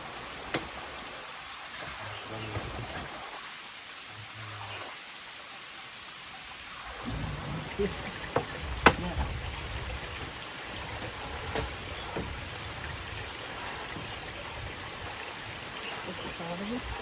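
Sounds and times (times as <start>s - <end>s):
rain: 0.0s - 17.0s
running water: 0.0s - 17.0s
sharp knocks: 7.1s - 12.9s.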